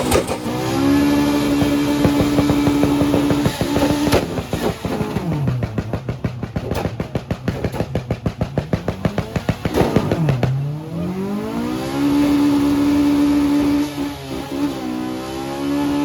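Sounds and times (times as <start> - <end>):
exhaust pop: 0.0 - 10.9
car engine revving: 0.0 - 16.0.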